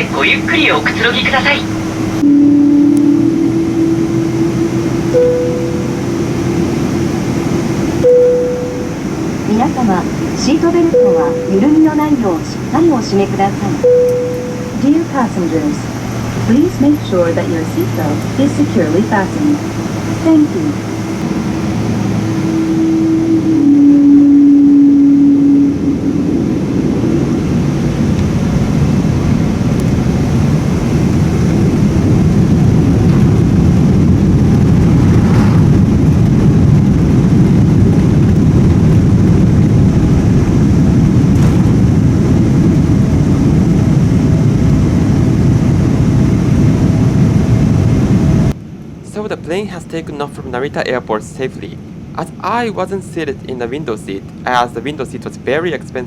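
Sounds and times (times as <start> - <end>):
airplane cabin hum: 0.0 - 56.0
jet engines rumbling at takeoff: 0.0 - 56.0
wheels rolling on runway: 30.6 - 42.9.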